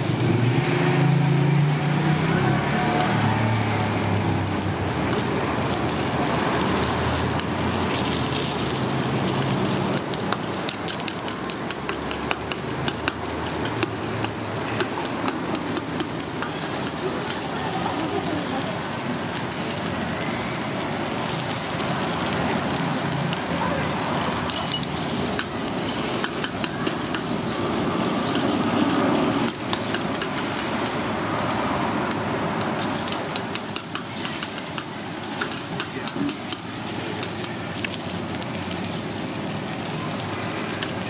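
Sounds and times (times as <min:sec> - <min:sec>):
batter sizzling in a pan: 0:00.0 - 0:41.0
sharp clicks and pops: 0:06.5 - 0:17.5, 0:24.3 - 0:27.4, 0:28.2 - 0:38.2.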